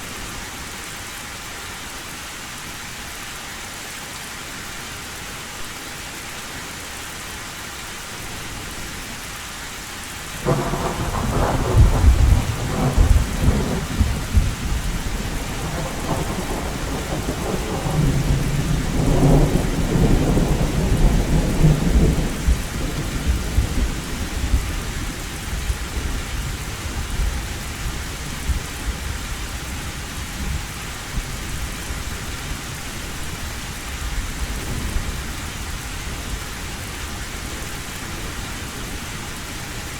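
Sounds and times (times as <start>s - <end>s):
heavy rain on a tin roof: 0.0s - 39.9s
thunder rumbling: 10.4s - 27.5s.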